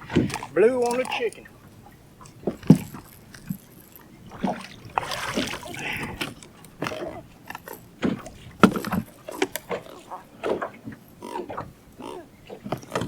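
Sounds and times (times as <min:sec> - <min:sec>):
knocks against boat: 0:00.0 - 0:01.1, 0:08.0 - 0:11.0
fish splashing at water surface: 0:04.3 - 0:06.4.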